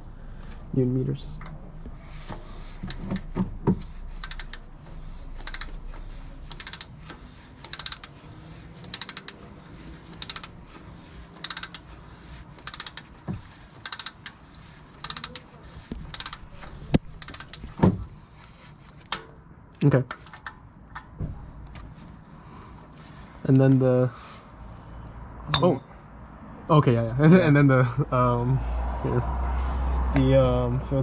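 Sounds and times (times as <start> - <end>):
ratchet wrench clicking: 4.2 - 4.7, 5.4 - 8.2, 8.8 - 9.4, 10.1 - 10.6, 11.4 - 11.9, 12.6 - 13.2, 13.8 - 14.4, 15.0 - 15.5, 16.1 - 17.7.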